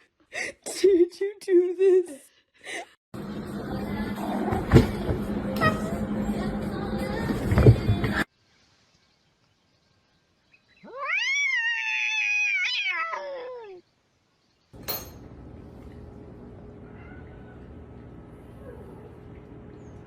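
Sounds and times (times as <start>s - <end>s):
cat meowing: 10.8s - 13.8s.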